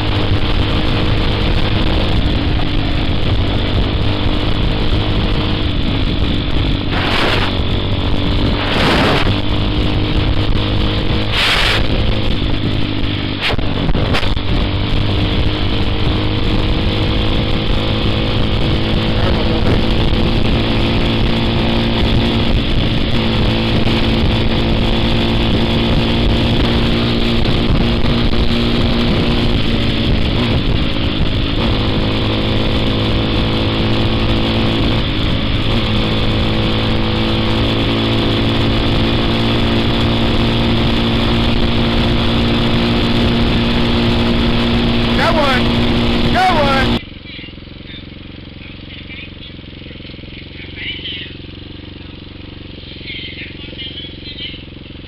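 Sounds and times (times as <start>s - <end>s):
dirt bike engine running: 0.0s - 55.0s
short bursts of noise: 6.9s - 7.6s, 11.3s - 12.0s.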